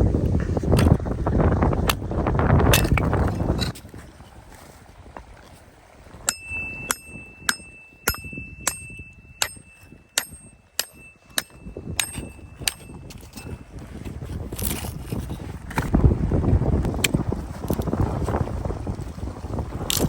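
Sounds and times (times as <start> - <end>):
metal object being struck: 6.3 - 13.0
high bell-like ring: 6.3 - 13.4.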